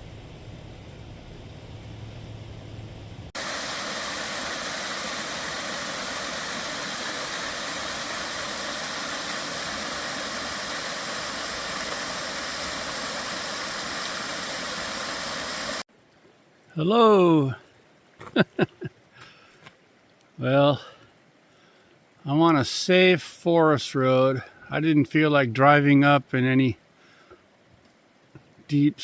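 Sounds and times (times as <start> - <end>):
low hum: 0.0 - 15.8
loud rushing hiss: 3.3 - 15.9.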